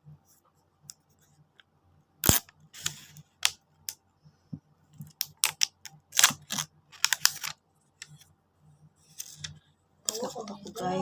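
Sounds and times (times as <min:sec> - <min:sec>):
packaging clicks and crinkles: 0:05.1 - 0:08.2.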